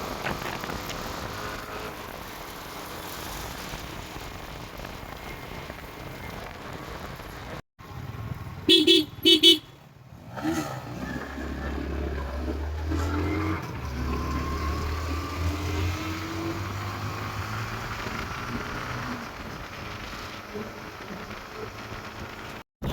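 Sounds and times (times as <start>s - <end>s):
vehicle horn beeps: 8.7s - 9.7s
motorcycle engine accelerating: 10.0s - 22.9s.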